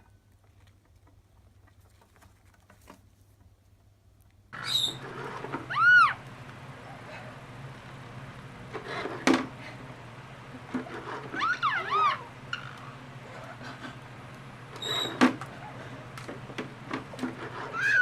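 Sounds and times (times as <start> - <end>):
parrot whistling calls: 4.6 - 7.6, 10.9 - 14.0, 17.6 - 18.0.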